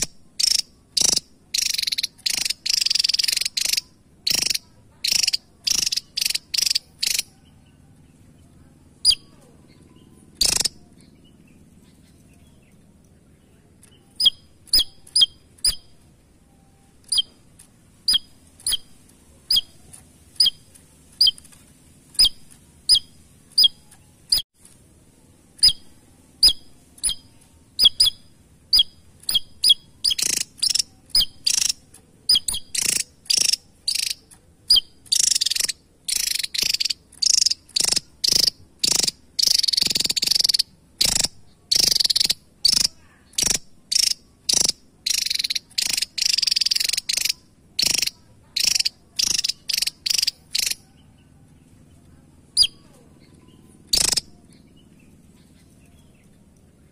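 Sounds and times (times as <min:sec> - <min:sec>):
buzzy rattling bird bursts: 0:00.0 - 0:07.4, 0:10.3 - 0:10.8, 0:25.5 - 0:50.8
bird chip notes: 0:00.0 - 0:24.4.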